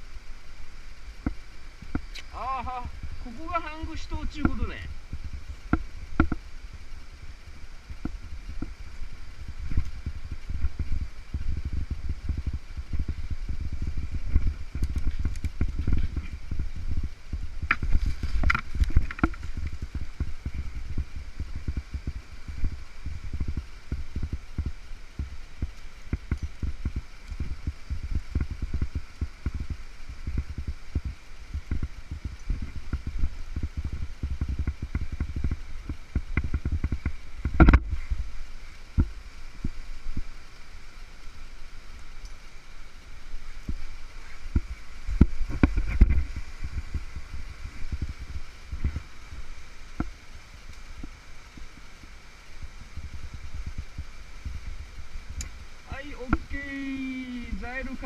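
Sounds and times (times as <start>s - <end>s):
low rumbling and thumping: 7.8s - 40.3s.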